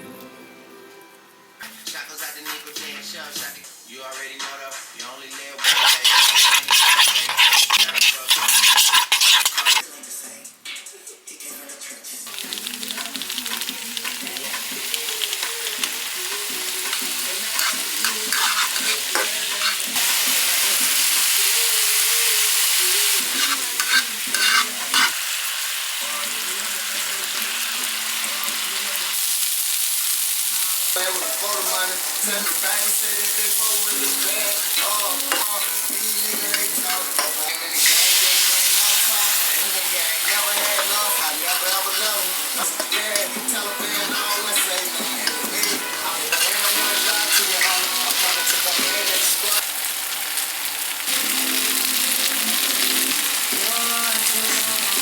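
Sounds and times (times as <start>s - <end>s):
food sizzling in a pan: 5.4s - 9.9s, 12.2s - 55.0s
utensil clicks and scrapes: 5.6s - 9.8s.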